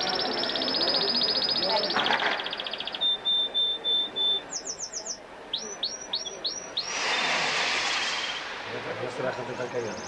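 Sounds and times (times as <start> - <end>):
songbird singing: 0.0 - 7.2.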